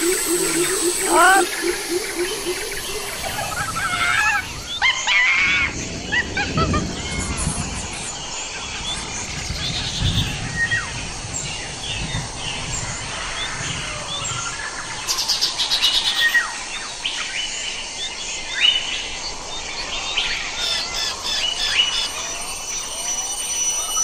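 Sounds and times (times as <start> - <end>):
evenly repeated bird notes: 0.0 - 4.8, 21.2 - 24.0
fast rattling bird trill: 0.0 - 4.9, 20.6 - 24.0
birds chirping and trilling: 0.0 - 24.0.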